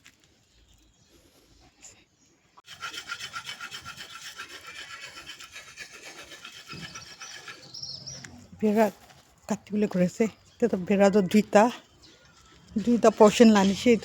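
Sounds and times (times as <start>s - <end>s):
hand saw cutting wood: 2.6s - 8.9s, 12.4s - 14.0s.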